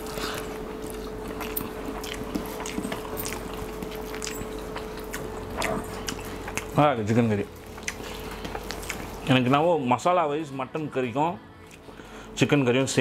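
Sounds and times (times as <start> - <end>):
person chewing food: 0.0 - 9.6, 11.6 - 12.2.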